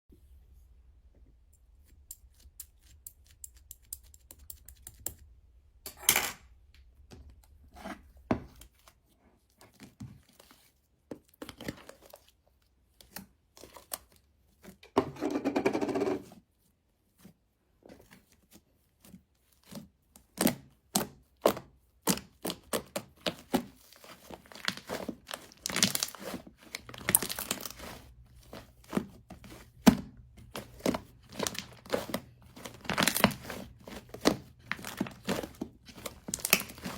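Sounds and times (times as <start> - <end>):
paper or plastic crinkling: 23.6 - 36.9.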